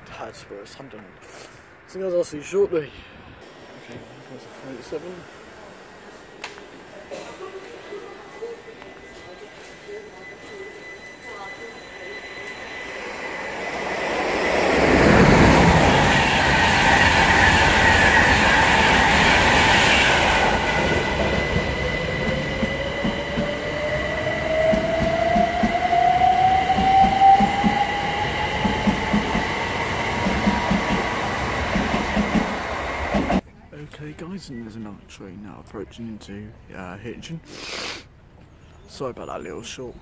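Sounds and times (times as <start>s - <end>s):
train passing at speed: 3.3s - 33.4s
rising tone: 8.4s - 33.4s.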